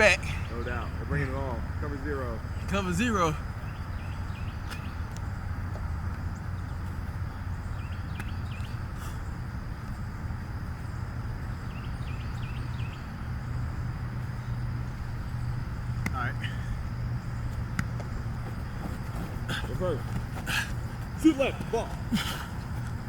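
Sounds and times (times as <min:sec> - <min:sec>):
low outdoor background rumble: 0:00.0 - 0:23.0
faint bird chirps: 0:11.4 - 0:13.6.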